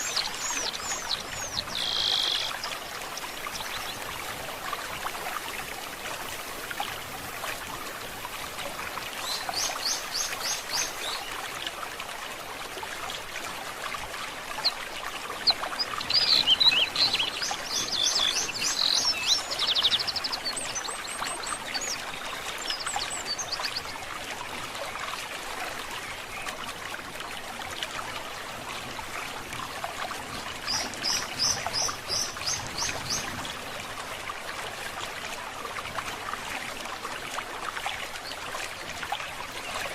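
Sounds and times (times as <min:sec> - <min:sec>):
songbirds chirping and trilling: 0:00.0 - 0:02.8, 0:15.5 - 0:23.8
stream burbling: 0:00.0 - 0:39.9.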